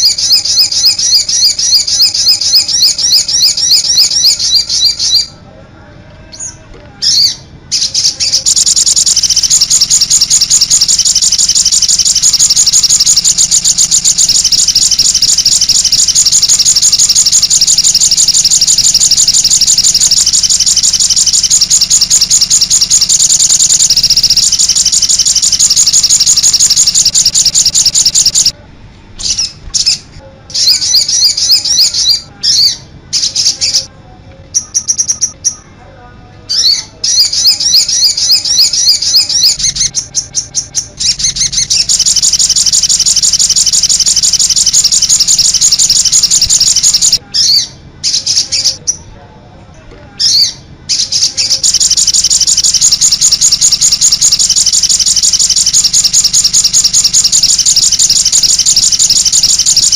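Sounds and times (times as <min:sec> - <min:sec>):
songbirds chirping and trilling: 0:00.0 - 0:28.6, 0:29.2 - 0:59.9.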